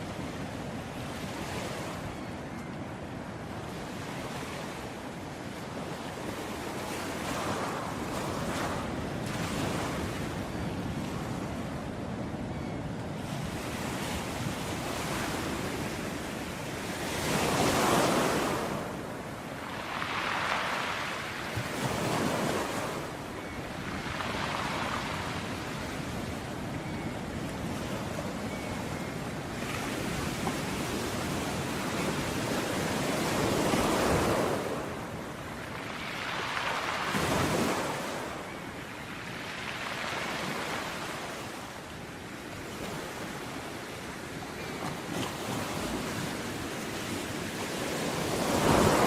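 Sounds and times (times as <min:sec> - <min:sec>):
steady sea noise: 0:00.0 - 0:49.0
waves breaking: 0:17.2 - 0:26.2, 0:29.6 - 0:38.5, 0:44.6 - 0:49.0.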